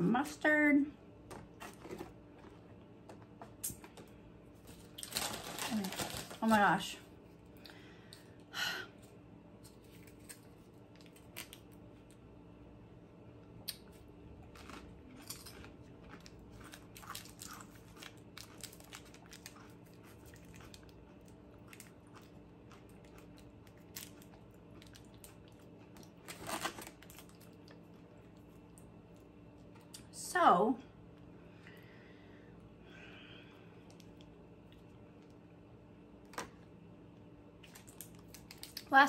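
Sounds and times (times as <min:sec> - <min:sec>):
small clicks and crinkles: 0:01.6 - 0:06.6, 0:37.6 - 0:39.0
potato chip crunching: 0:04.7 - 0:06.5, 0:09.6 - 0:11.8, 0:13.6 - 0:28.8, 0:37.6 - 0:39.0
plastic packet tearing open: 0:04.9 - 0:06.4, 0:26.2 - 0:27.4.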